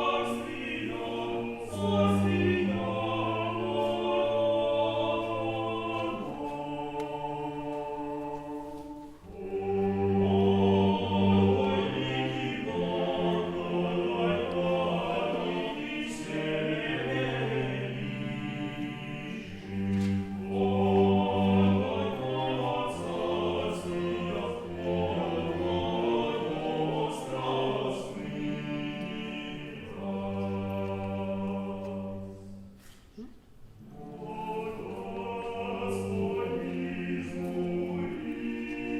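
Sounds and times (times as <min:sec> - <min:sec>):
choir singing slow held chords: 0:00.0 - 0:32.9, 0:33.6 - 0:38.9.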